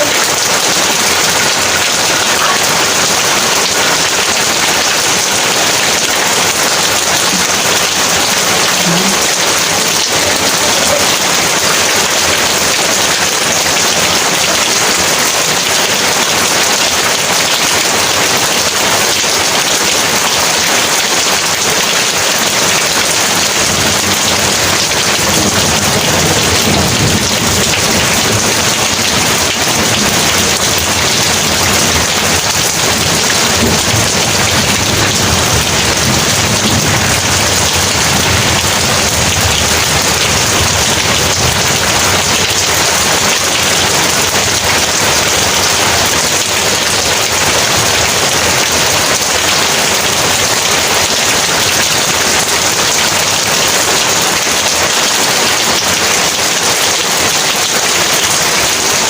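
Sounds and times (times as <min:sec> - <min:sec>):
heavy rain hissing: 0:00.0 - 0:59.0.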